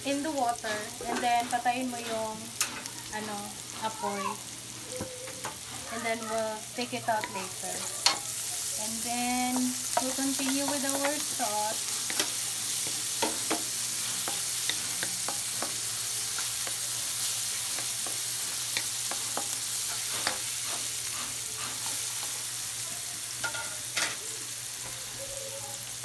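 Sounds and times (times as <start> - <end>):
garlic and onions sizzling in a wok: 0.0 - 26.0
wooden spatula scraping a pan: 0.5 - 3.0, 3.7 - 4.2, 7.2 - 22.5.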